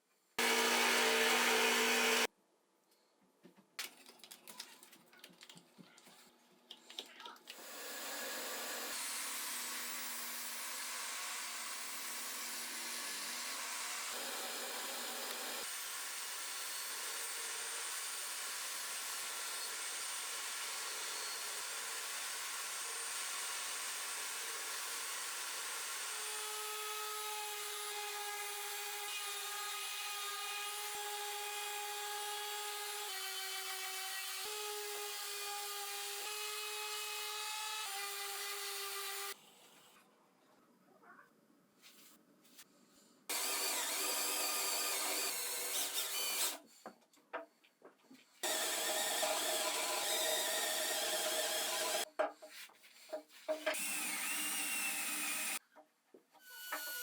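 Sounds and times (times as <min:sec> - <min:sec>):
power tool cutting wood: 0:00.4 - 0:02.3, 0:07.5 - 0:39.4, 0:43.3 - 0:46.6, 0:48.4 - 0:52.1, 0:53.6 - 0:55.6.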